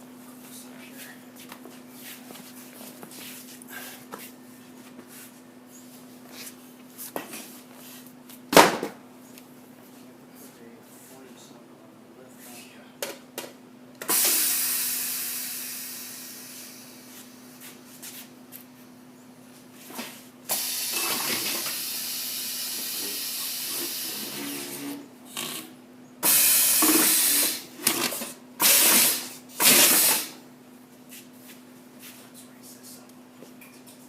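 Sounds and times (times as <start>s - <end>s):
air hissing: 14.1s - 17.4s, 20.5s - 25.0s, 26.2s - 27.7s, 28.6s - 30.4s
machine humming: 20.6s - 30.2s.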